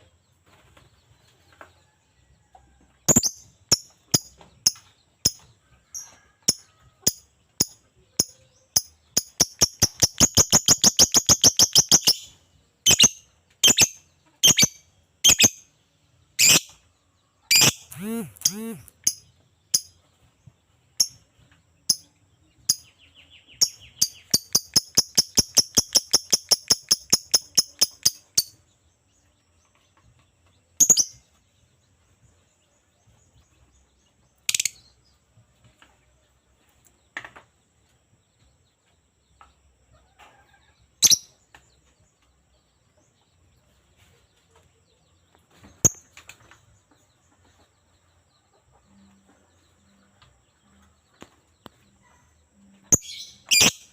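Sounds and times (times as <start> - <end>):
lovebird chirping: 3.1 - 6.0, 7.6 - 15.7, 16.4 - 16.8, 17.5 - 19.9, 21.9 - 28.7, 34.4 - 34.9, 52.0 - 53.9.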